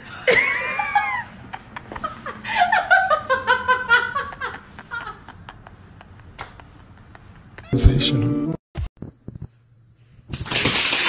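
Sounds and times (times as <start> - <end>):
person laughing: 0.2 - 7.8.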